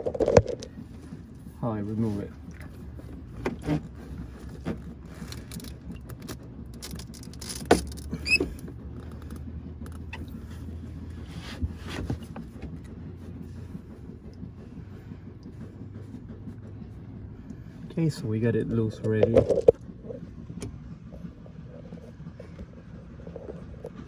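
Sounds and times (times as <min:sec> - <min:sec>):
metallic clicks scrapes and knocks: 0:03.2 - 0:10.7, 0:19.0 - 0:19.8
short squeak: 0:08.0 - 0:08.7.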